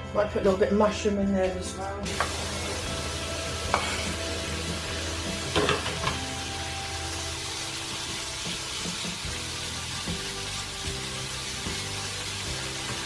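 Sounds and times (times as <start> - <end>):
food sizzling in a pan: 2.0 - 13.0
utensil clattering in a pan: 5.4 - 6.3.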